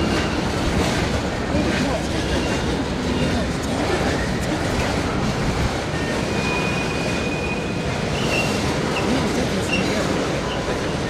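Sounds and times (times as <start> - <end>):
train wheels rumbling on rails: 0.0 - 11.0
high wheel squeal: 6.0 - 10.8.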